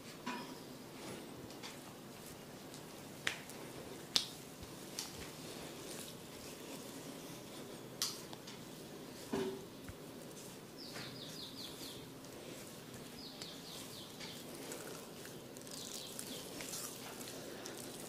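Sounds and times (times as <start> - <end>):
background hiss: 0.0 - 18.0
bird chirping: 10.8 - 12.1, 13.1 - 14.6, 15.6 - 16.6.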